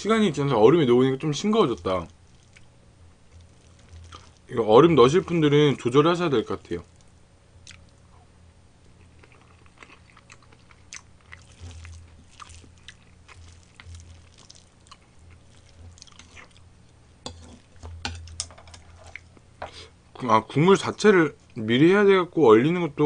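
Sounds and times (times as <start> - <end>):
chewing with wet mouth smacks: 2.3 - 2.7, 3.3 - 4.5, 6.8 - 8.0, 8.9 - 16.7.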